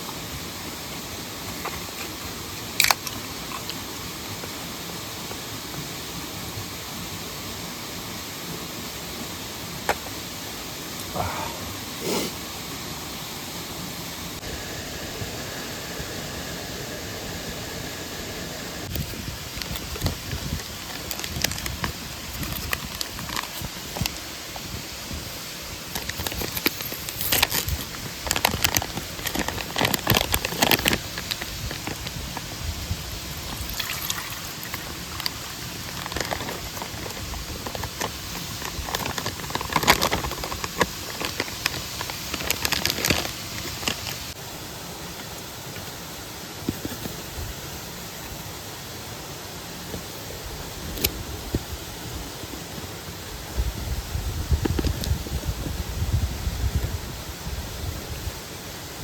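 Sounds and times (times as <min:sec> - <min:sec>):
stream water rushing: 0:00.0 - 0:53.6
dry kindling crackling: 0:18.8 - 0:24.2, 0:25.8 - 0:44.4.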